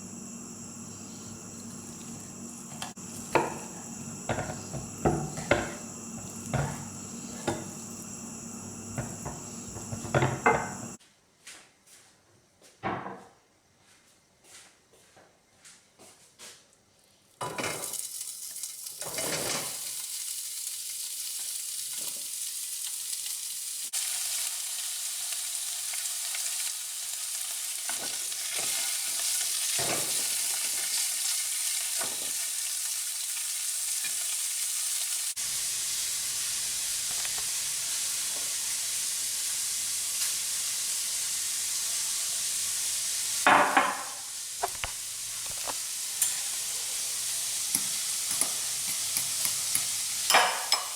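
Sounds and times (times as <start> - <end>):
sausage sizzling in a pan: 0.0 - 11.0, 17.4 - 50.9
utensil knocking and scraping pan: 2.7 - 7.8, 9.0 - 10.8.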